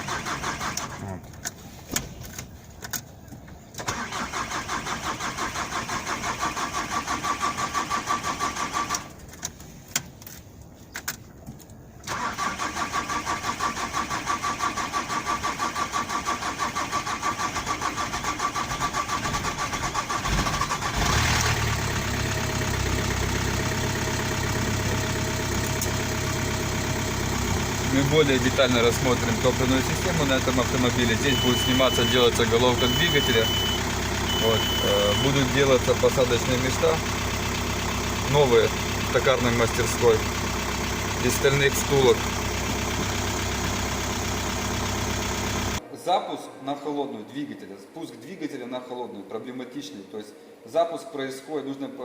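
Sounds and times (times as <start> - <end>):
diesel engine cranking: 0.0 - 45.8
diesel engine idling: 12.1 - 45.8.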